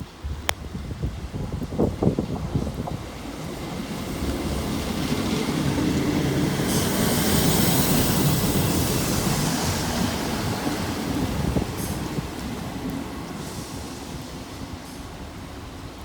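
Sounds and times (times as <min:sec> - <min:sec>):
diesel train engine: 0:00.0 - 0:16.0
train wheels on rails: 0:00.0 - 0:16.0
burst of hiss: 0:13.4 - 0:15.2.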